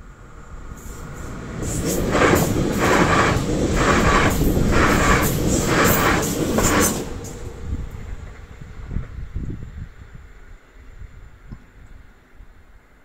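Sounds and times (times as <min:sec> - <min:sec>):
train rumbling past: 0:00.0 - 0:11.4
train wheels clattering: 0:00.9 - 0:09.2.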